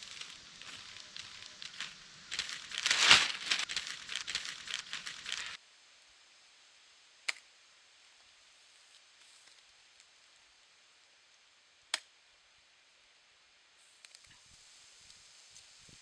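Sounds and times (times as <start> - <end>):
plastic sheeting crinkling: 0.0 - 5.6.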